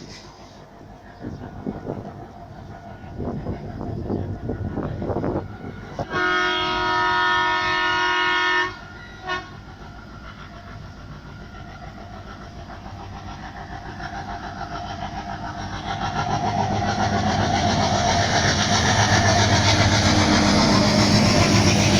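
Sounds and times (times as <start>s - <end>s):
locomotive horn: 6.0s - 9.6s
train wheels clattering on rails: 8.8s - 21.9s.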